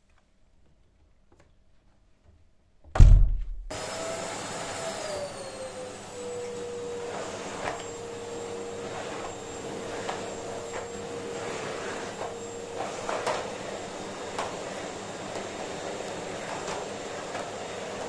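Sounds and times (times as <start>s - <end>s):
loud low thump: 2.9s - 3.7s
vacuum cleaner running: 3.7s - 18.0s.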